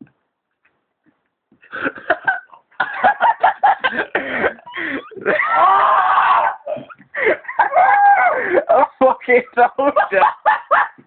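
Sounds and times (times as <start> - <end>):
man gasping and grunting: 3.9 - 5.3
man crying out: 4.8 - 6.8, 7.6 - 8.5.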